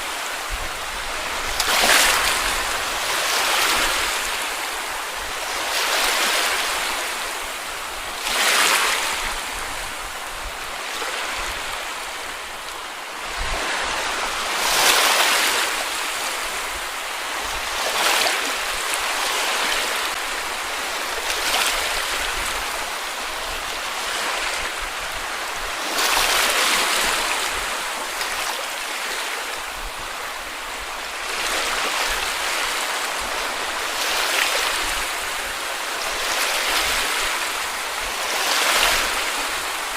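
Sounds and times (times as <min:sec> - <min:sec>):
small waves breaking on beach: 0:00.0 - 0:39.9.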